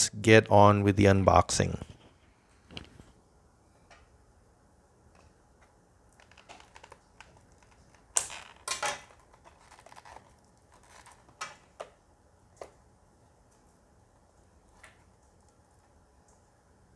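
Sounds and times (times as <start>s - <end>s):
plastic packaging crinkling: 6.2s - 11.8s.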